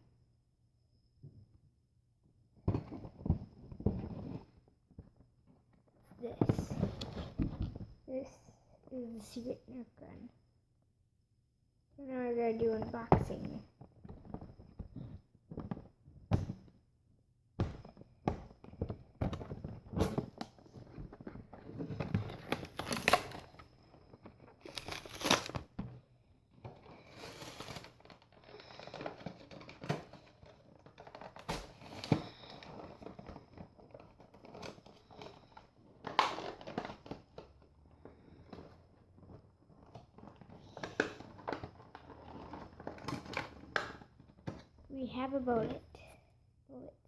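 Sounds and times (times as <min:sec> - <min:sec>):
plastic and cardboard crinkling: 0:17.7 - 0:44.9.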